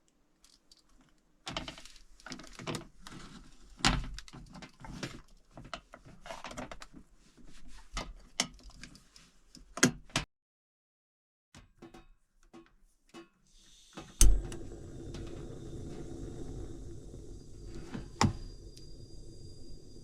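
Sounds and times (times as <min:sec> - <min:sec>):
clicks and rustling of handling: 0:00.4 - 0:10.2.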